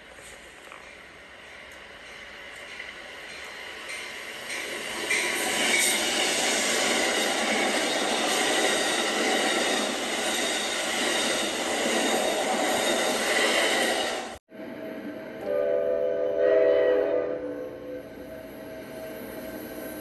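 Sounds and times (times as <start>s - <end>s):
train wheels rushing on rails: 0.0s - 15.7s.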